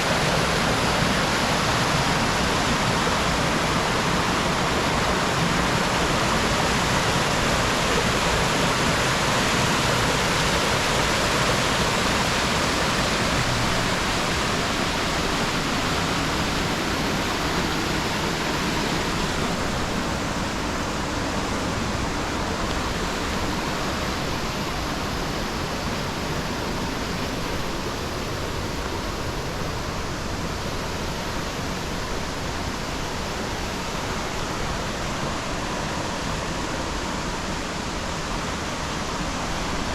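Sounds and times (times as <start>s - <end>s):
river and waterfall rushing: 0.0s - 39.9s.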